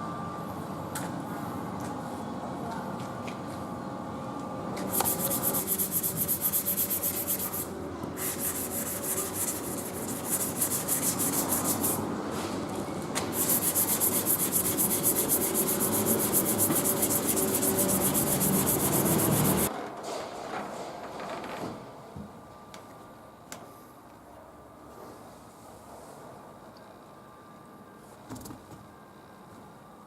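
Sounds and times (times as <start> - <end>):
sanding a car bumper: 4.9 - 12.0, 13.3 - 19.7.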